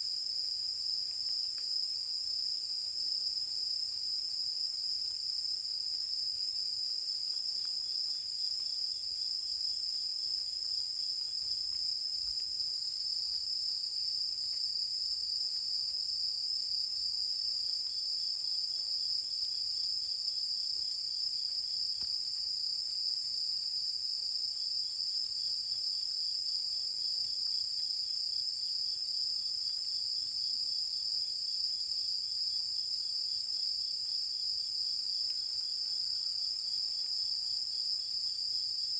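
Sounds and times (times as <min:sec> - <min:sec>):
high-pitched insect trill: 0:26.5 - 0:38.9.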